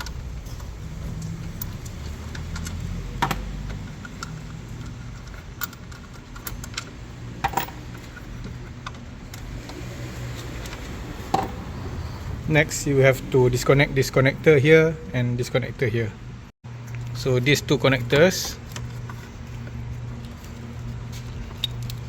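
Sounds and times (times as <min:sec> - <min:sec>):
metal tools and screws clinking: 0:00.0 - 0:09.4.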